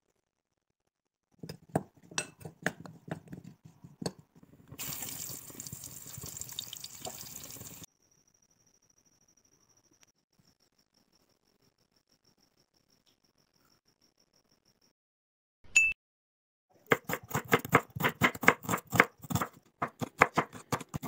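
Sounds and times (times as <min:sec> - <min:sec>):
oil poured onto potatoes: 0:04.8 - 0:07.9
potatoes sizzling in hot oil: 0:04.8 - 0:07.9.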